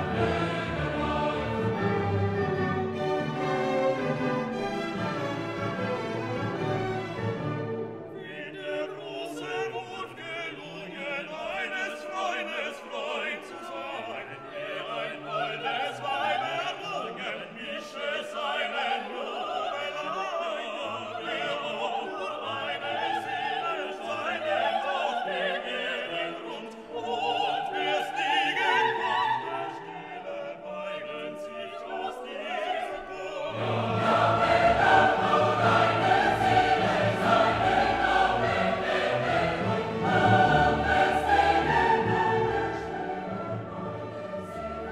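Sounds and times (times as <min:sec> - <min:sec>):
orchestra playing: 0:00.0 - 0:08.4, 0:33.5 - 0:44.9
operatic singing with choir: 0:00.0 - 0:44.9.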